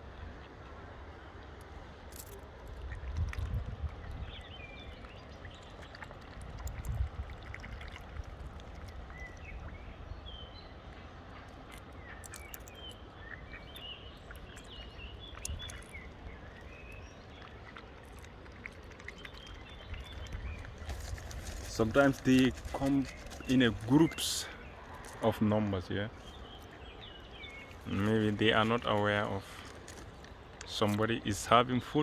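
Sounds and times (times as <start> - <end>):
wind rumbling on microphone: 2.7 - 17.5, 19.2 - 25.3
birds chirping: 8.9 - 18.4, 19.0 - 32.0.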